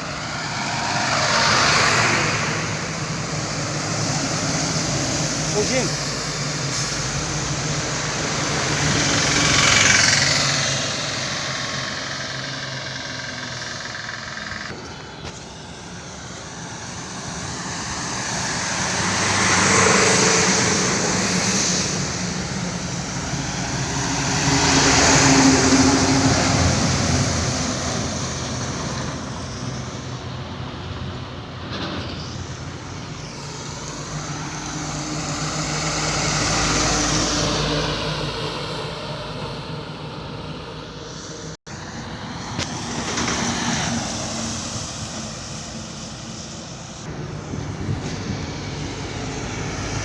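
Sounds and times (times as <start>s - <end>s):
vehicles passing by: 0.0s - 50.0s.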